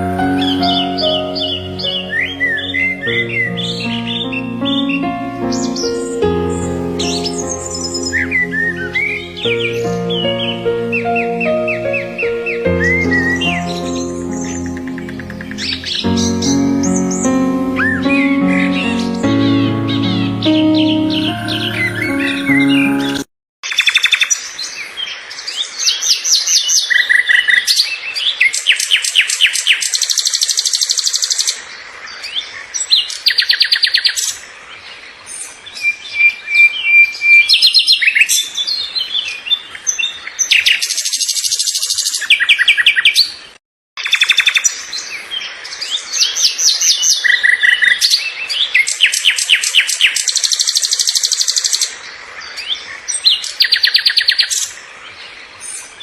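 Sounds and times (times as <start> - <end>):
songbirds chirping in trills: 0.0 - 23.3.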